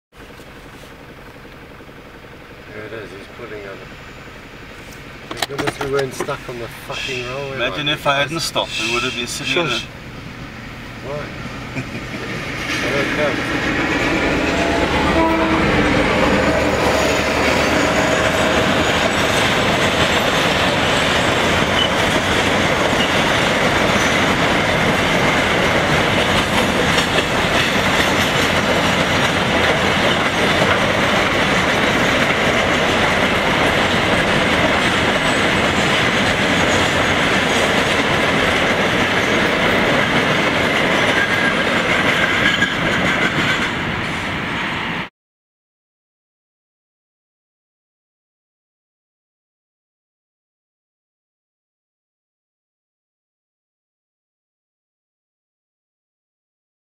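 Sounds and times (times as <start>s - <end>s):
freight train rumbling past: 0.1s - 45.1s
wheels clattering over rail joints: 5.2s - 7.5s, 16.1s - 44.2s.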